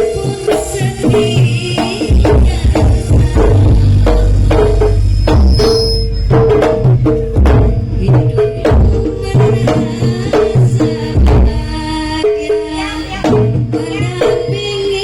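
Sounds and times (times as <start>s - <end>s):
hand drums beating: 0.1s - 15.0s
ringing gong-chime notes: 3.8s - 7.9s.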